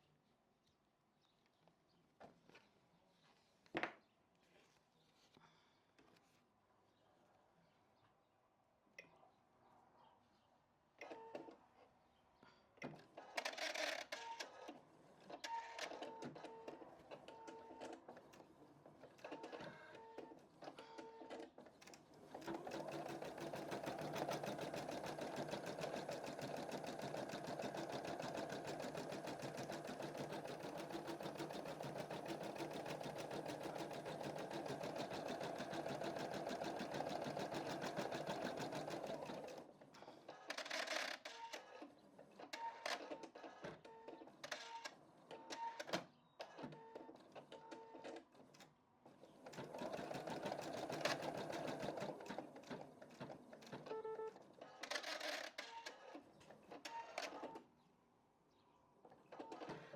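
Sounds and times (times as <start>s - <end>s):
rapid needle stitching: 22.3s - 39.6s, 49.6s - 52.8s
embroidery machine whirring with clicks: 49.4s - 56.0s.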